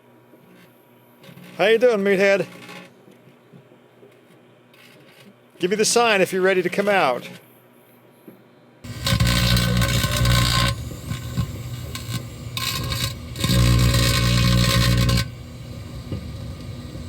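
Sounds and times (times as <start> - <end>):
electrical arcing crackling: 8.9 - 17.0
microwave oven hum: 8.9 - 17.0.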